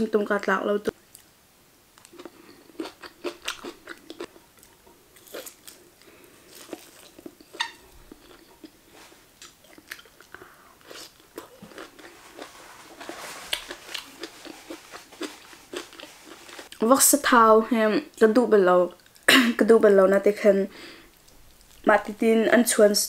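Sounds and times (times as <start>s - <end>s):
person chewing with crunches: 2.0s - 16.8s.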